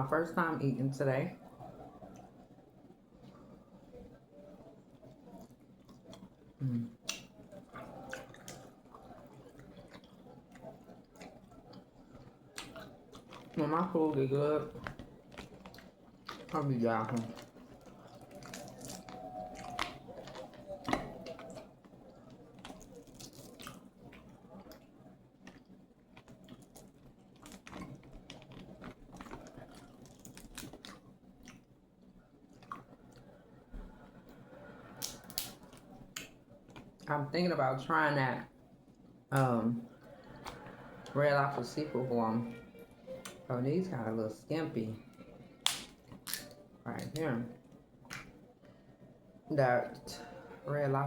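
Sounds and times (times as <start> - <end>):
wet chewing sounds: 3.2 - 37.1, 39.9 - 41.2, 45.0 - 48.9
shells clicking and cracking: 45.6 - 46.6.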